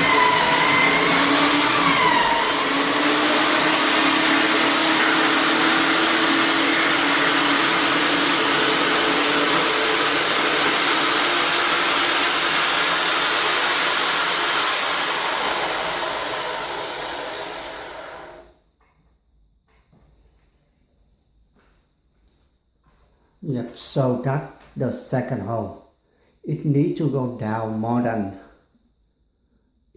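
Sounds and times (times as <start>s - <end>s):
electric drill boring through wood: 0.0s - 18.5s.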